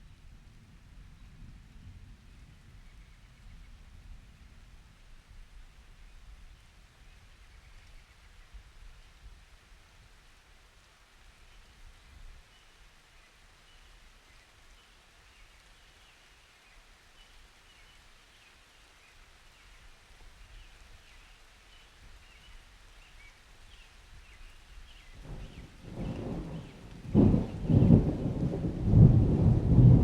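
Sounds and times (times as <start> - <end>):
faint steady rain: 0.0 - 30.0
low rumble of thunder: 0.1 - 6.5, 25.0 - 30.0.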